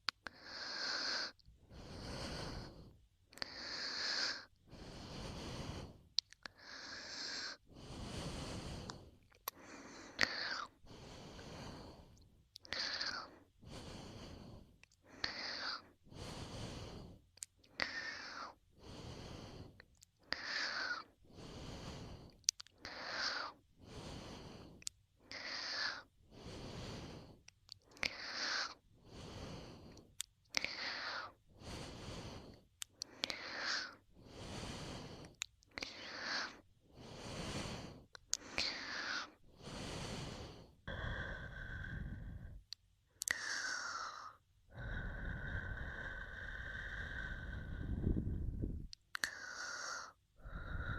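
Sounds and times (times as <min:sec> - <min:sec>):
breathing and blowing into microphone: 0:04.2 - 0:06.0, 0:07.3 - 0:12.2, 0:33.3 - 0:42.6, 0:46.9 - 0:48.9.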